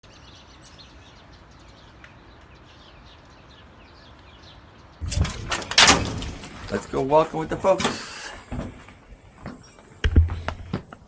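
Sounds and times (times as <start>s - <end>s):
small birds chirping: 0.0s - 5.8s, 6.5s - 10.0s
loud clatter with sharp knock: 5.1s - 6.7s.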